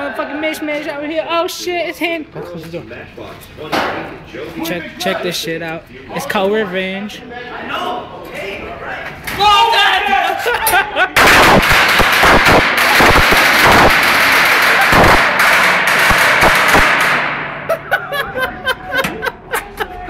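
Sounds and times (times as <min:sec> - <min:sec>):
firecrackers going off: 0:11.2 - 0:17.7.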